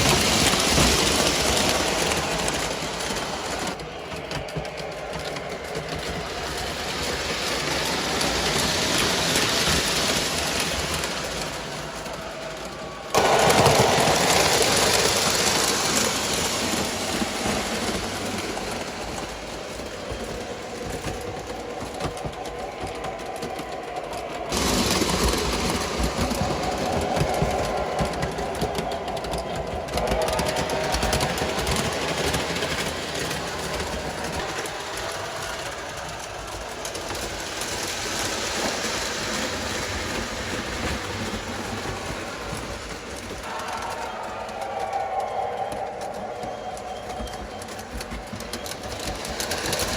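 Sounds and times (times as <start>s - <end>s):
model trains whirring on track: 0.0s - 49.9s.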